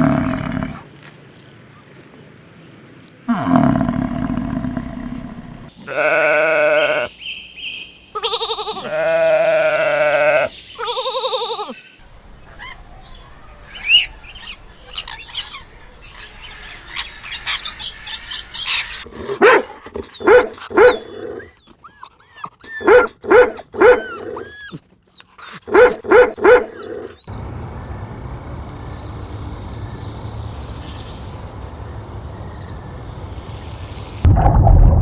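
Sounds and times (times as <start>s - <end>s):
dog barking: 19.2s - 21.5s, 22.7s - 24.7s, 25.5s - 27.2s
faint high chirping: 20.2s - 34.2s.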